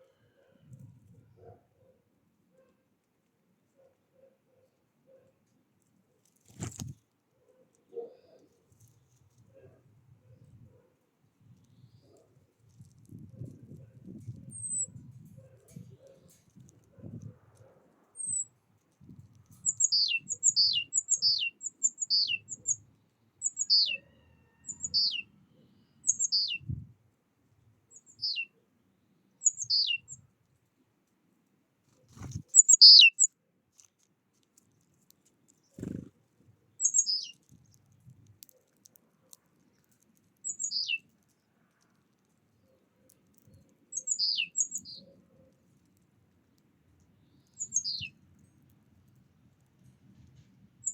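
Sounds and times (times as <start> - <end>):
songbird calling downslurred notes: 19.6 - 22.8, 23.4 - 26.6, 27.9 - 28.5, 29.4 - 30.2, 32.1 - 33.3, 36.8 - 37.4, 40.4 - 41.0, 43.9 - 45.2, 47.2 - 48.2.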